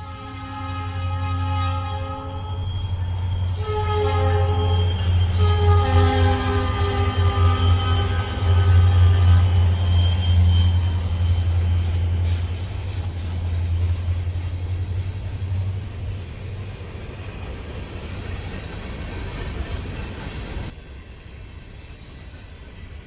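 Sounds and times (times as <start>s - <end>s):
train horn blast: 0.0s - 11.0s
diesel locomotive engine drone: 0.0s - 23.0s.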